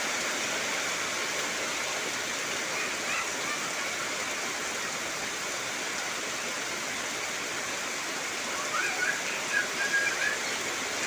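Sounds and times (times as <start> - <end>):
heavy rain hissing: 0.0 - 11.0
short whistle-like calls: 8.7 - 10.5.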